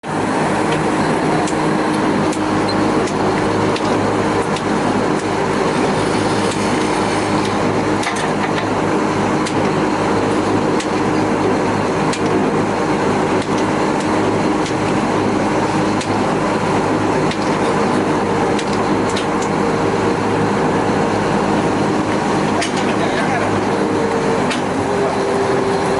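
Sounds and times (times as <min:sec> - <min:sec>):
boat engine running: 0:00.0 - 0:25.9
sharp clicks and knocks: 0:13.4 - 0:15.0, 0:18.5 - 0:19.6, 0:24.4 - 0:24.7.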